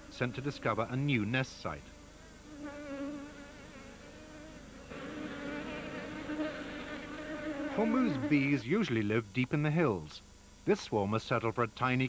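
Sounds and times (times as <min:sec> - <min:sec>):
honeybees buzzing: 0:00.0 - 0:09.0.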